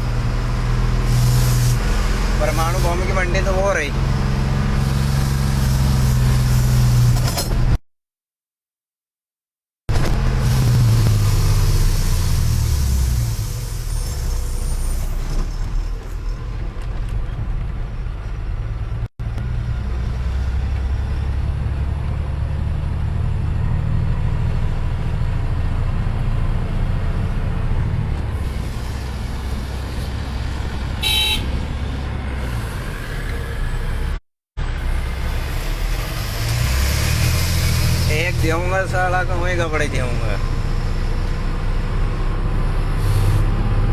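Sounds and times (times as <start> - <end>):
road noise: 0.0 - 7.8, 9.9 - 43.9
truck engine rumble: 0.0 - 7.8, 9.9 - 43.9
brief high-pitched squeal: 11.7 - 16.5.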